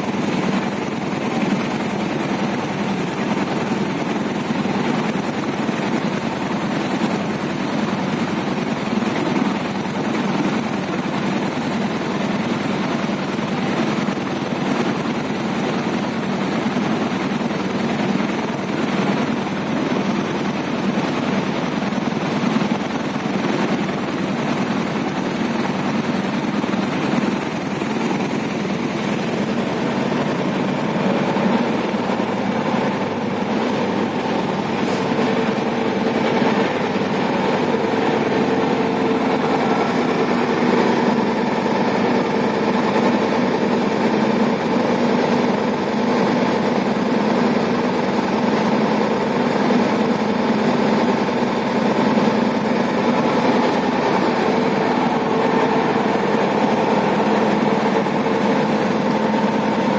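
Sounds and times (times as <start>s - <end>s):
engines running: 23.4s - 43.9s.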